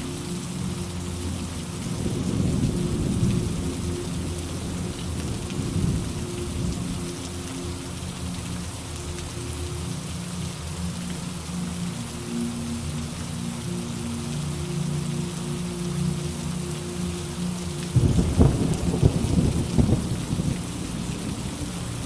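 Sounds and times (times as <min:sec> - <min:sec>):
steady rain falling: 0:00.0 - 0:22.0
low rumble of thunder: 0:02.0 - 0:07.0, 0:18.0 - 0:21.5.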